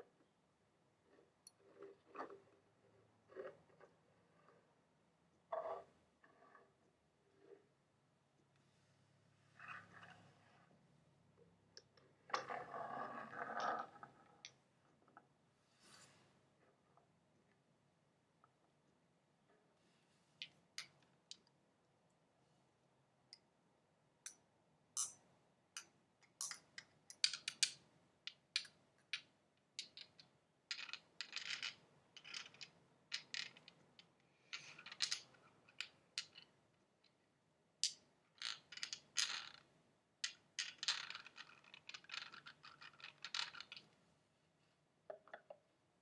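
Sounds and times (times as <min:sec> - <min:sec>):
crackly scratches: 0:03.3 - 0:04.7.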